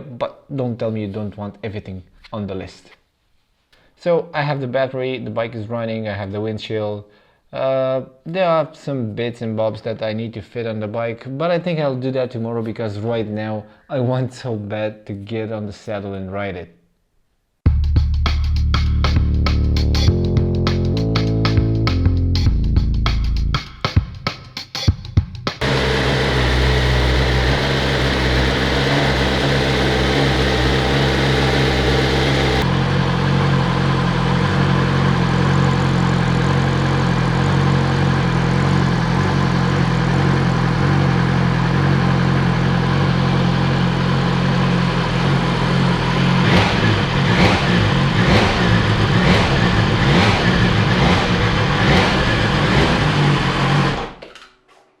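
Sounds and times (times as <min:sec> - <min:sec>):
motorcycle engine idling and revving: 0:25.6 - 0:54.2.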